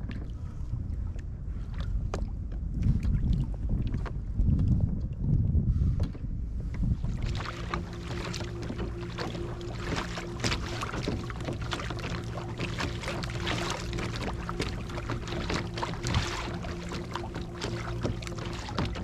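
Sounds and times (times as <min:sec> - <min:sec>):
water splashing along hull: 0:00.0 - 0:19.0
wind rumble on microphone: 0:00.0 - 0:19.0
motor hum: 0:05.8 - 0:19.0.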